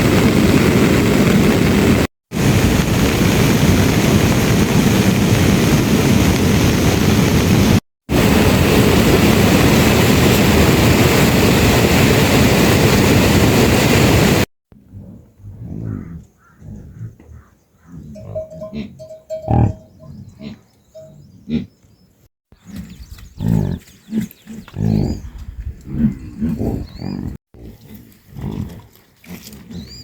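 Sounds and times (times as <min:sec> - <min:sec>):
heavy rain pouring: 0:00.0 - 0:14.5.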